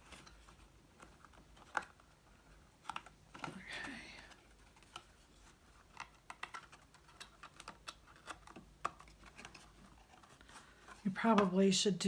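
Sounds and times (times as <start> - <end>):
cardstock clicking and tapping: 5.8 - 10.3.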